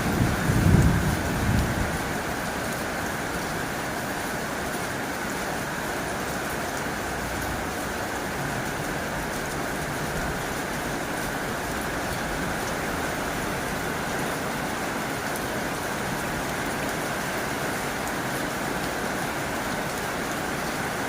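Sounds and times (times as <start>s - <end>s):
low thunder rumble: 0.0s - 2.2s
heavy rain on a tin roof: 0.0s - 21.0s.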